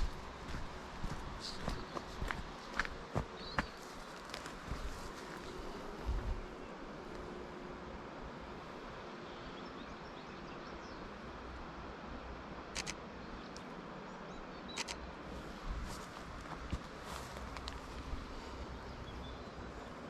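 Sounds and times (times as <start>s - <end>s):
outdoor background noise: 0.0s - 20.0s
camera shutter double click: 12.8s - 13.0s, 14.7s - 15.0s.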